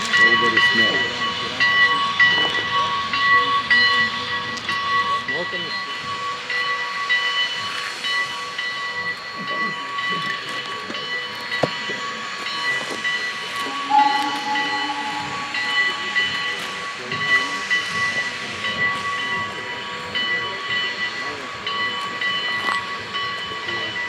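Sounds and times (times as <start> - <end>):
steady high tones: 13.6 - 17.8
short lower tone: 13.7 - 17.3.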